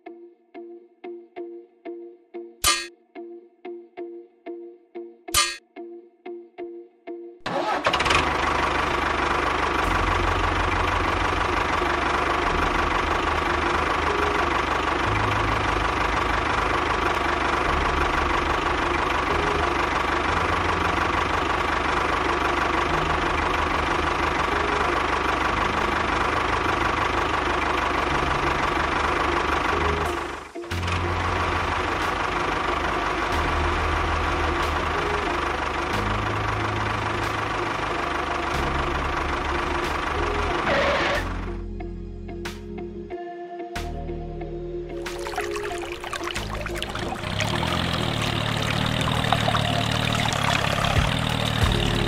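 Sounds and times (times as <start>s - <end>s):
engine chugging: 7.5s - 41.6s, 45.0s - 52.0s.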